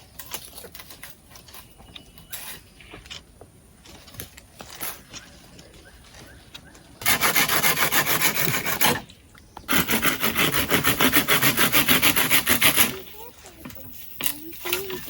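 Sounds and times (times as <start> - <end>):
hand saw cutting wood: 7.0 - 15.0.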